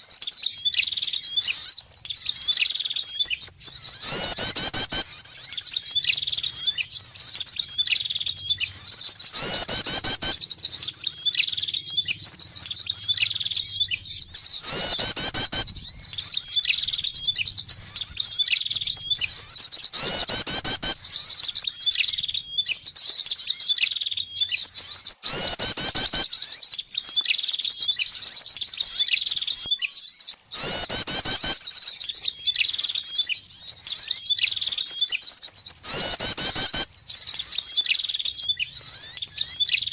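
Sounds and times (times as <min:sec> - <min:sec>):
harsh bird call: 0:00.0 - 0:39.9
songbirds chirping in trills: 0:00.0 - 0:39.9.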